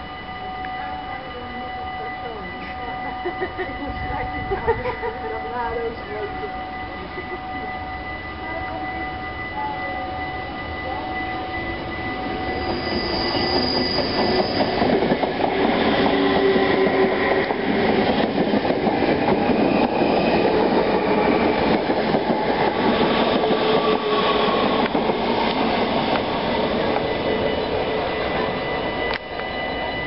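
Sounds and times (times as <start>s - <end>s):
train passing: 0.0s - 30.0s
high squeal: 5.6s - 18.4s, 19.1s - 30.0s.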